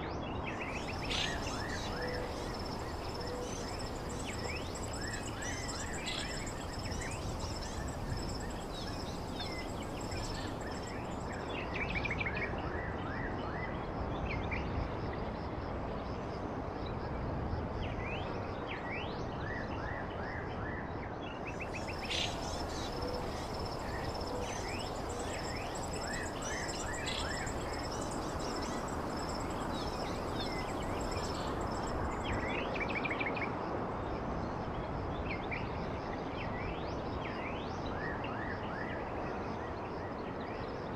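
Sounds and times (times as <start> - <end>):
birds chirping: 0.6 - 11.3, 21.6 - 32.4
rushing background noise: 0.6 - 11.5, 21.6 - 32.8
high-pitched insect drone: 0.7 - 11.4, 21.7 - 32.5.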